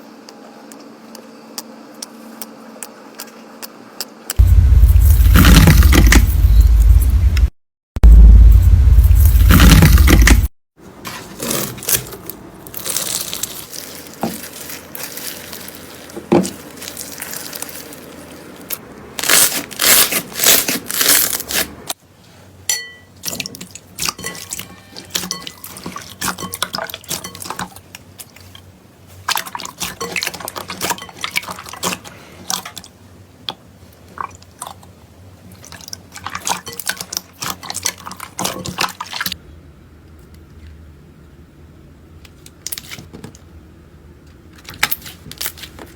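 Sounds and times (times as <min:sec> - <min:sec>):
slime squelching: 0:11.4 - 0:21.9.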